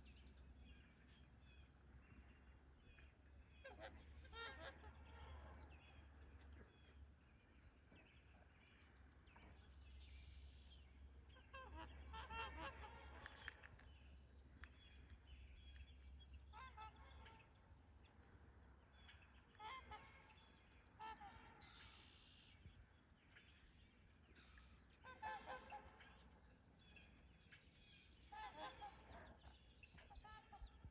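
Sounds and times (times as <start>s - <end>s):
swans honking: 3.7s - 6.2s.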